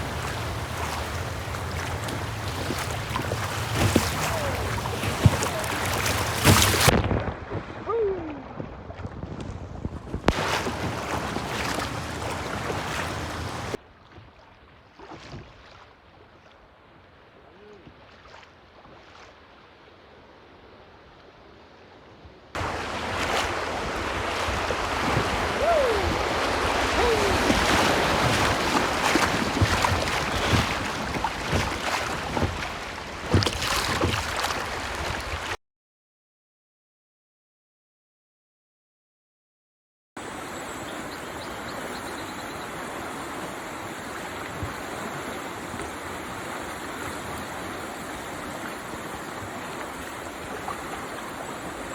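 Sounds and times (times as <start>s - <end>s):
rushing river water: 0.0s - 9.2s, 10.3s - 35.6s, 40.2s - 51.9s
wind buffeting microphone: 22.6s - 33.4s.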